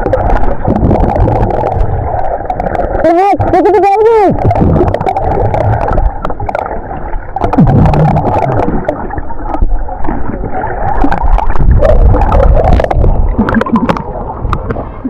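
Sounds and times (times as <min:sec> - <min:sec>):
underwater churning and gurgling: 0:00.0 - 0:15.0
low rumble: 0:07.4 - 0:15.0.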